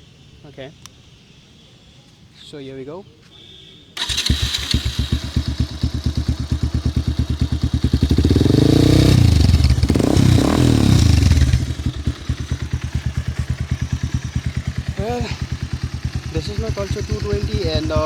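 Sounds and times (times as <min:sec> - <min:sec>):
motorcycle engine idling and revving: 0:04.0 - 0:18.0.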